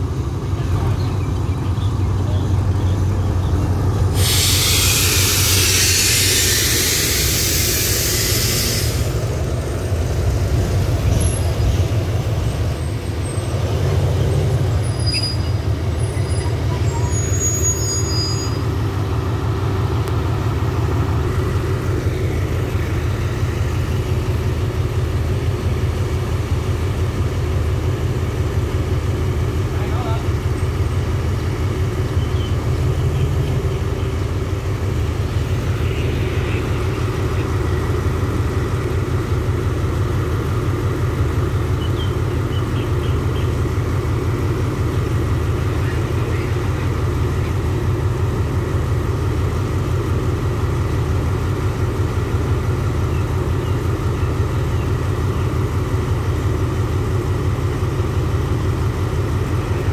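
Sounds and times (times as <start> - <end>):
passenger train rumbling past: 0.0 - 59.9
loud hiss of air: 4.0 - 9.5
high wheel or brake squeals: 4.2 - 9.2, 14.7 - 18.9.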